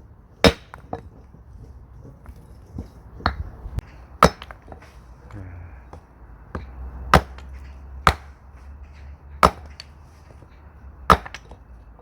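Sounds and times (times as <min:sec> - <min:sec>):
axe chopping firewood: 0:00.4 - 0:01.2, 0:02.2 - 0:08.5, 0:09.3 - 0:10.0, 0:11.0 - 0:11.6.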